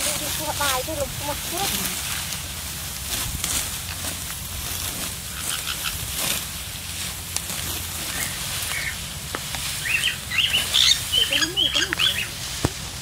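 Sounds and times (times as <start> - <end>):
rustling of rice stalks being cut: 0.0 - 13.0
birds chirping: 3.9 - 13.0.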